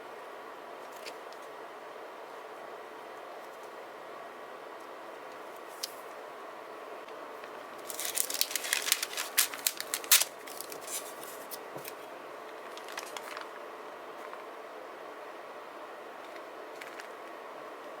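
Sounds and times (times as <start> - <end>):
paper crackling by hand: 7.5 - 13.6, 16.3 - 17.4.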